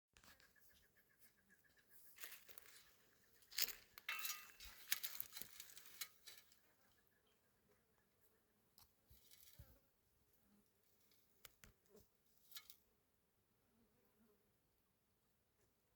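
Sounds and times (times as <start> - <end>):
crackling rustles and clicks: 3.5 - 6.6.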